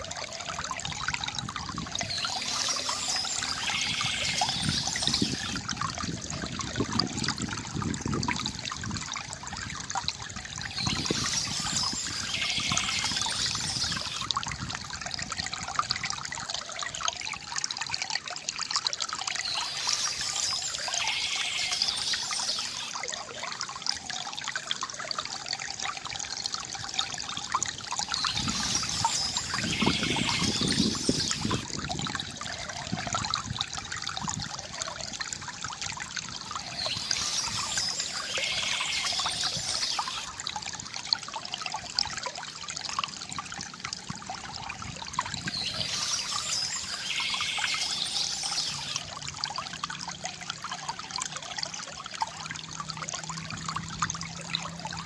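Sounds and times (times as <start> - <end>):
water trickling from bamboo fountain: 0.0 - 55.0.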